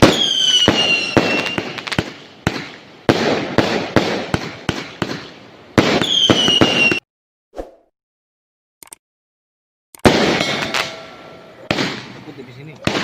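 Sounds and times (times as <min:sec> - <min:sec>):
falling firework whistle: 0:00.0 - 0:02.0, 0:06.0 - 0:07.1
fireworks bangs: 0:00.0 - 0:07.0, 0:10.0 - 0:13.0
fireworks crackling: 0:00.0 - 0:07.0.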